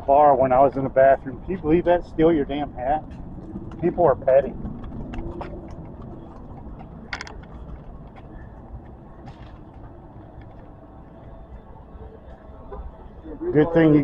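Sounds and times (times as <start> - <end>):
low vehicle rumble: 0.0 - 14.0.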